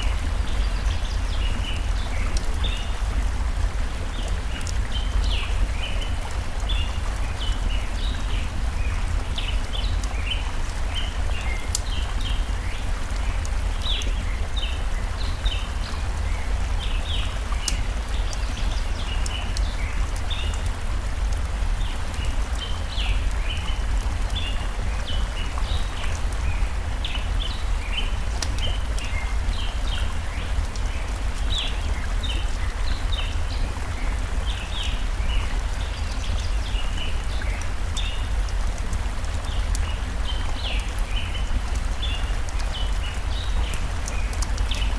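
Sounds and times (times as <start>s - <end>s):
stream rushing: 0.0s - 44.9s
wood fire crackling: 11.3s - 12.3s.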